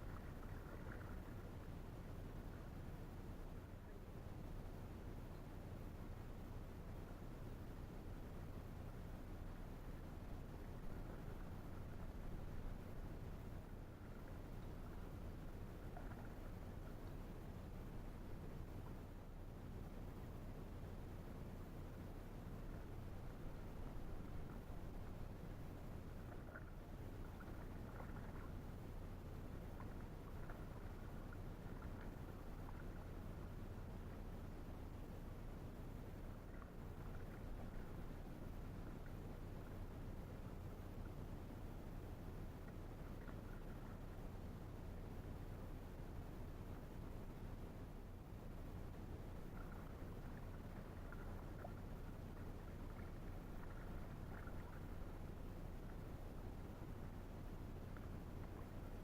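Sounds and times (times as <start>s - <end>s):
low steady rumble: 0.0s - 59.0s
paddle water drips and splashes: 22.6s - 35.1s, 48.8s - 59.0s.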